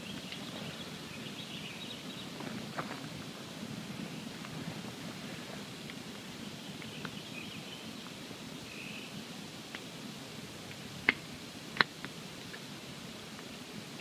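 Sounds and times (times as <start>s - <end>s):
campfire crackling: 9.4s - 14.0s.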